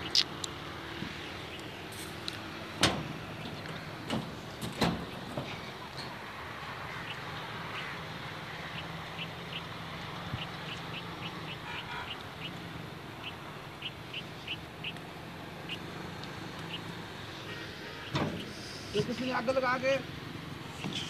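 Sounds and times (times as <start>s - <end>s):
bird chirping: 6.9s - 9.7s, 10.3s - 12.6s, 13.2s - 15.0s, 15.6s - 15.9s.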